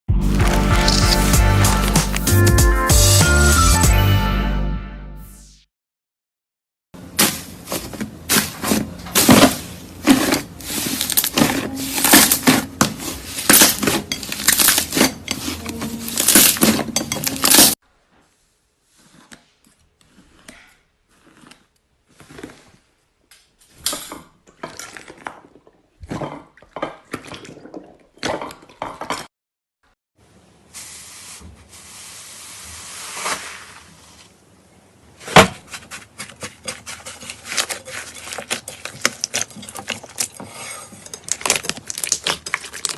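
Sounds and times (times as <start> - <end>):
slime clicking and squishing: 41.0 - 42.9.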